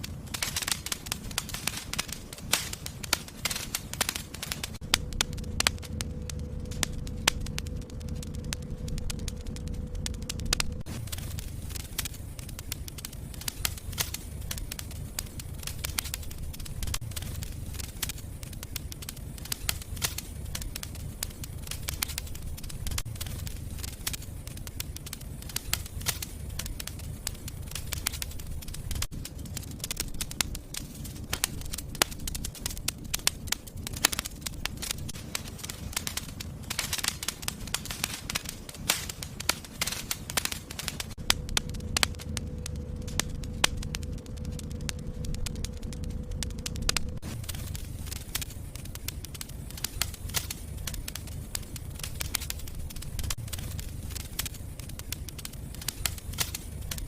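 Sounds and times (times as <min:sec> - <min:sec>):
fire crackling in a fireplace: 0:00.0 - 0:57.0.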